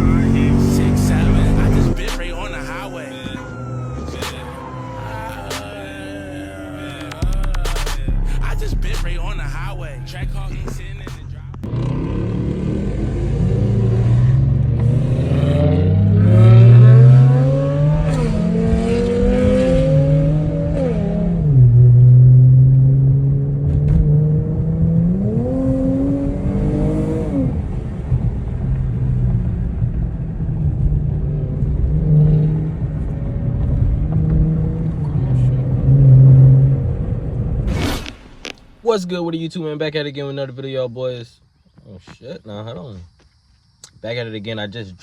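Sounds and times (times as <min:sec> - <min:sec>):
car engine revving and idling: 0:00.0 - 0:39.0.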